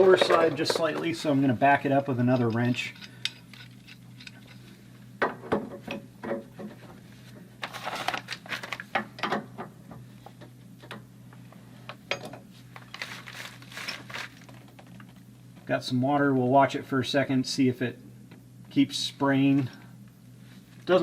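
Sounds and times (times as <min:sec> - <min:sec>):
wrenches clinking and scraping on metal: 0:00.0 - 0:04.7
steady low hum: 0:00.0 - 0:21.0.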